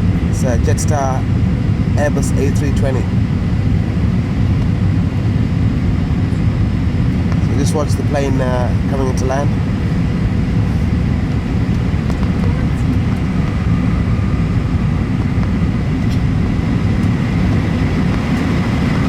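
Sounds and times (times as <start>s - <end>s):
airplane cabin engine roar: 0.0s - 19.0s
faint steady whine: 0.0s - 19.0s.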